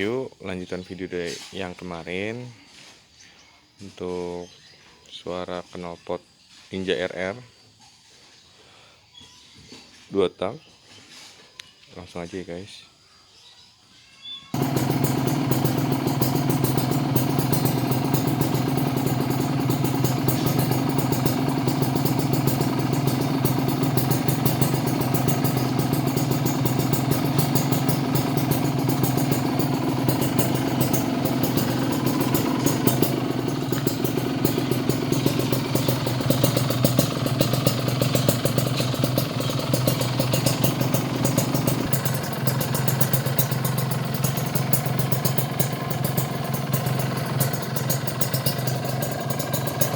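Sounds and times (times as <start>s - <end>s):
two-stroke motorcycle engine idling: 14.6s - 49.9s.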